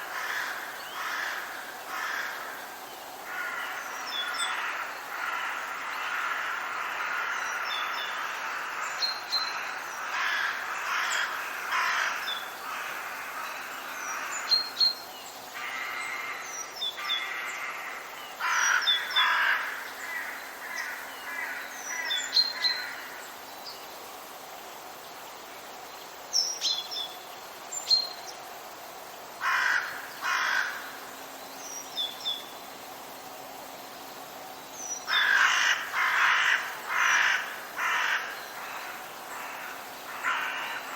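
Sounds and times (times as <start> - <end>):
songbirds chirping: 0.0 - 40.9
birds cawing: 0.1 - 2.6, 3.2 - 8.9, 9.6 - 14.5, 17.0 - 23.2, 29.4 - 31.0, 35.1 - 40.9.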